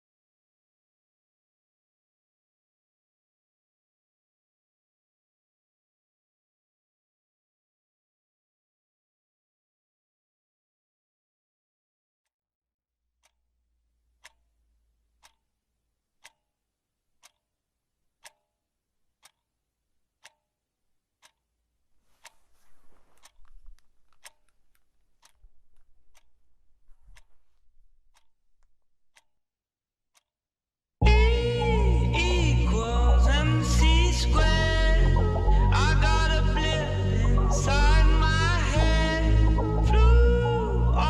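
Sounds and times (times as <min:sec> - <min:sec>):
clock ticking: 0:13.2 - 0:13.4, 0:14.1 - 0:15.5, 0:16.2 - 0:16.5, 0:17.2 - 0:17.5, 0:18.2 - 0:18.6, 0:19.2 - 0:19.5, 0:20.2 - 0:20.5, 0:21.2 - 0:29.3, 0:31.0 - 0:41.0
faint low rustling: 0:22.0 - 0:28.2.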